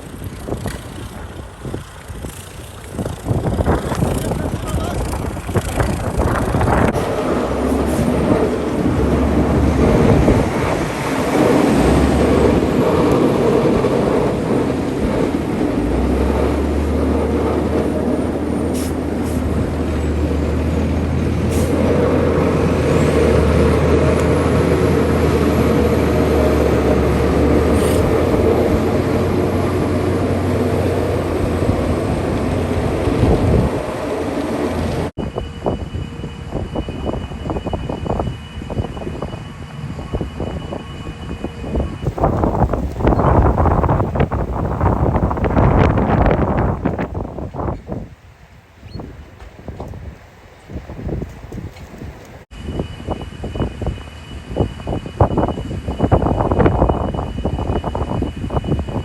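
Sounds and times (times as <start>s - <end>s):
low engine hum: 0.0s - 36.9s, 41.5s - 48.2s.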